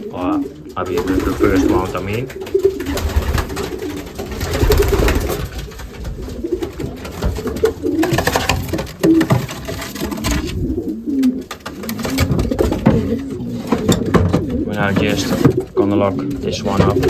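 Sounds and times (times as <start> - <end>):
pigeons cooing: 0.0 - 17.0.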